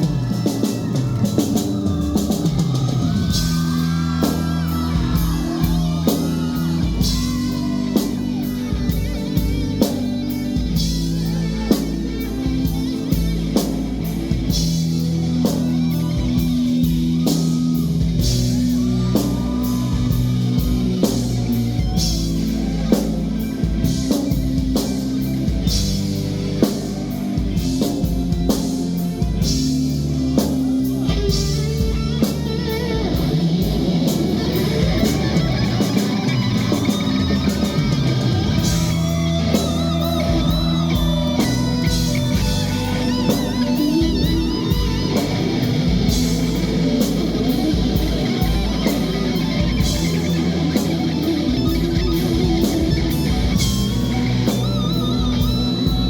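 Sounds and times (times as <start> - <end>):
drum kit beat: 0.0 - 56.0
electric guitar bending notes: 0.0 - 56.0
sustained bass: 0.0 - 56.0.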